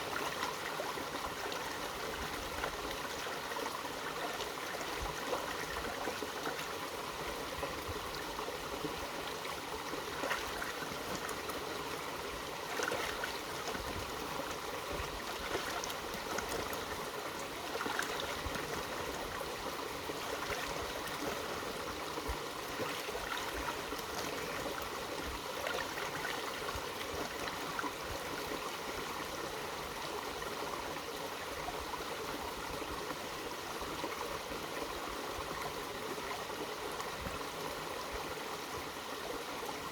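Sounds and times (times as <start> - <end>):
stream flowing over rocks: 0.0 - 39.9
water splashes: 12.6 - 14.3, 14.9 - 17.0.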